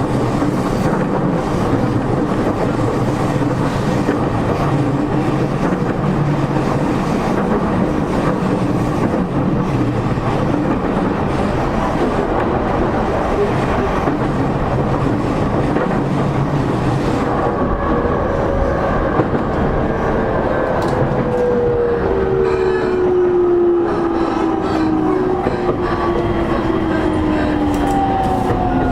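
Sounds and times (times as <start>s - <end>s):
wheels clickety-clack: 0.0s - 17.2s
train wheels rumbling on track: 0.0s - 28.9s.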